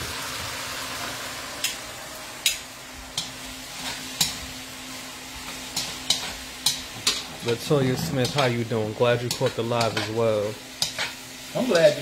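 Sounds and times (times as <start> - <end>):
chicken sizzling in a hot wok: 0.0 - 12.0
spatula striking wok: 5.5 - 7.6.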